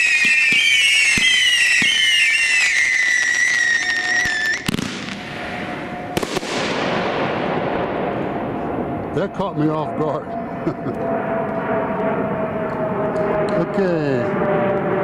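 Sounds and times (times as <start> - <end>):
firework whistles shrieking: 0.0 - 6.8
firework bang: 0.0 - 9.0.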